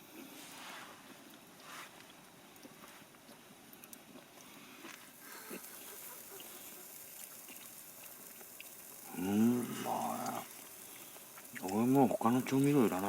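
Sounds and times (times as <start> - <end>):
campfire crackling: 0.2 - 13.0
wavering vocal moan: 9.1 - 10.5.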